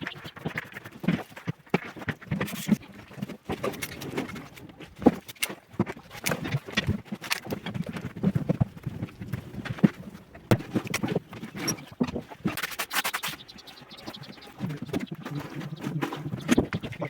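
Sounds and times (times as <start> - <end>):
rasping scraping: 7.4 - 17.0
tiling knocks and taps: 10.4 - 11.4.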